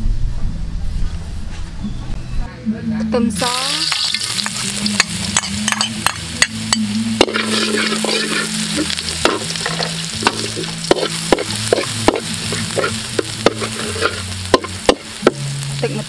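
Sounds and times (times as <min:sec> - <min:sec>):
garlic sizzling in hot oil: 0:03.4 - 0:16.0
metal spatula scraping a wok: 0:03.8 - 0:16.0.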